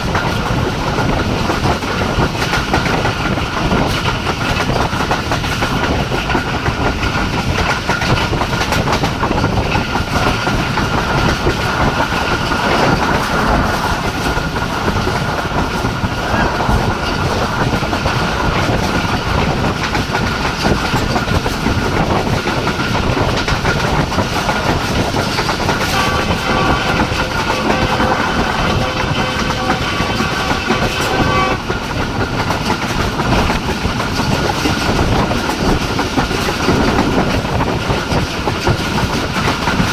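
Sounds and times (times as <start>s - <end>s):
train wheels clattering on rails: 0.0s - 39.9s
train horn: 25.8s - 31.8s.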